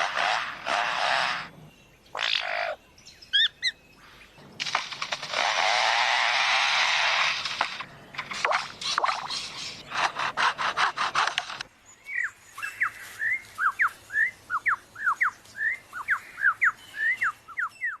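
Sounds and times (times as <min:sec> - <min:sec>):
bird mimicking chainsaw: 0:04.6 - 0:11.6
whistled bird notes: 0:12.0 - 0:18.0.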